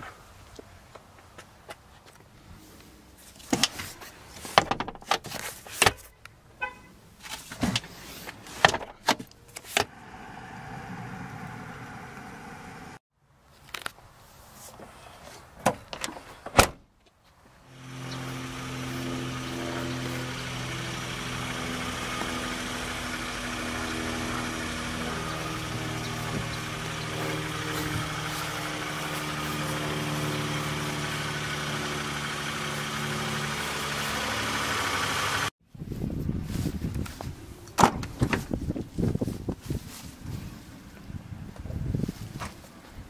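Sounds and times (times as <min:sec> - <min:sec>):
car engine idling: 0:09.9 - 0:13.0, 0:17.7 - 0:35.5.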